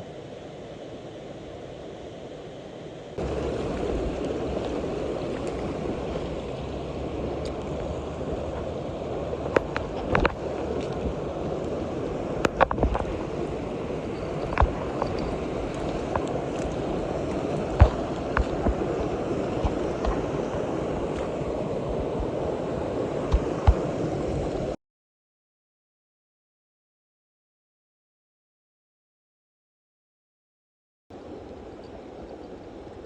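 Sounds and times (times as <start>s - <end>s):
stream water rushing: 0.0s - 24.8s, 31.1s - 33.0s.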